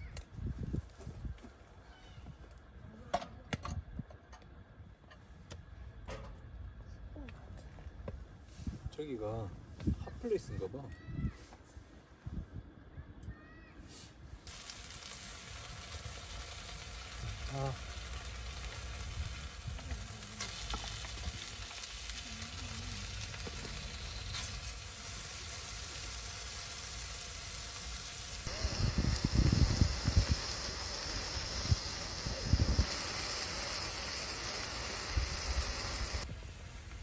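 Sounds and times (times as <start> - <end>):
food sizzling in a hot pan: 14.5 - 36.3.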